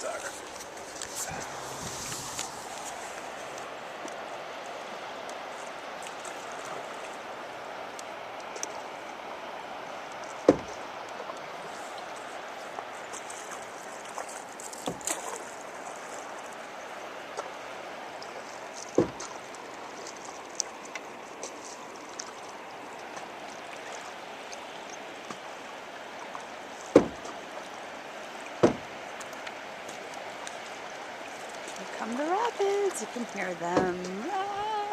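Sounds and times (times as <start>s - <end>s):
river water rushing: 0.0s - 34.9s
paddle knocking canoe side: 10.4s - 10.8s, 14.8s - 15.4s, 18.9s - 19.4s, 26.9s - 27.4s, 28.6s - 29.0s, 33.6s - 34.2s.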